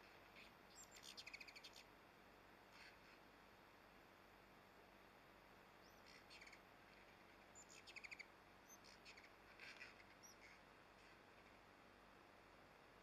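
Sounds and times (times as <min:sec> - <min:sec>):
faint steady hiss: 0:00.0 - 0:13.0
bird chattering trills and chirps: 0:00.4 - 0:01.9, 0:05.8 - 0:10.6.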